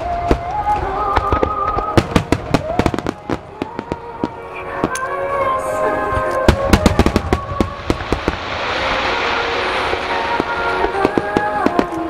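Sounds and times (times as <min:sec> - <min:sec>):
firework crackles: 0:00.0 - 0:12.0
music with long held notes: 0:00.0 - 0:12.0
firework shells bursting: 0:06.3 - 0:12.0.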